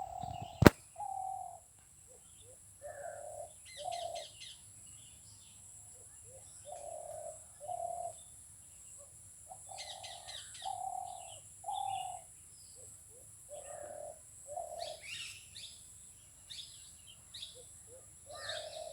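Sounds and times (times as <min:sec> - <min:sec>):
small birds chirping: 0:00.0 - 0:00.8
dove cooing: 0:00.0 - 0:01.6, 0:06.6 - 0:08.2, 0:09.7 - 0:12.2, 0:13.5 - 0:15.1, 0:18.3 - 0:18.9.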